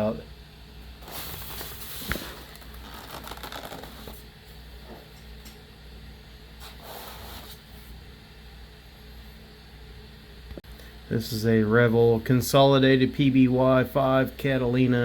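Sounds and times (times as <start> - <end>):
cardboard packaging rustling: 1.0 - 4.2.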